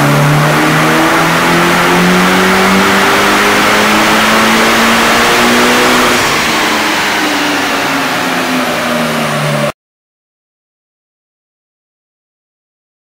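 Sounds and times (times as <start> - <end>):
car engine under full load: 0.0 - 9.8.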